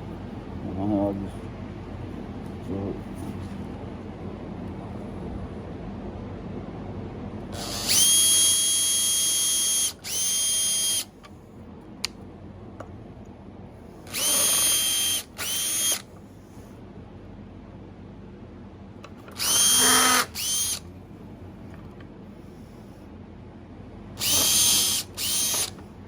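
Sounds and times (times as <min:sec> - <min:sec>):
power drill whining: 0:07.5 - 0:11.1, 0:14.1 - 0:16.0, 0:19.3 - 0:20.8, 0:24.2 - 0:25.8.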